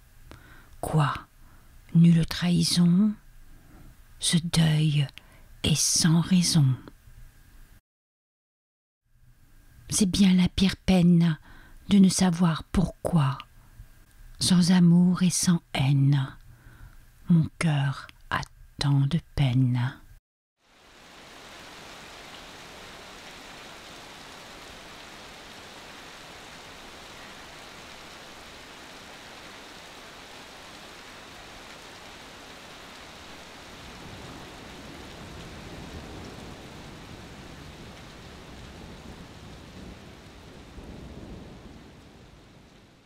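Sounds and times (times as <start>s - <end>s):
steady rain: 20.6s - 43.0s.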